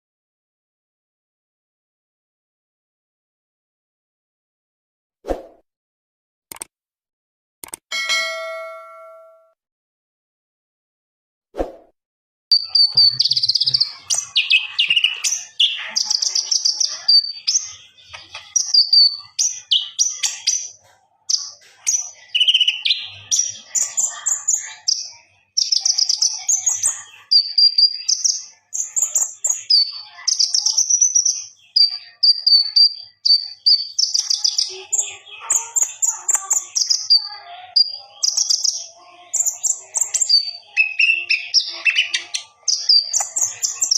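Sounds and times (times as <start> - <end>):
songbird chirping and whistling: 12.5 - 43.9.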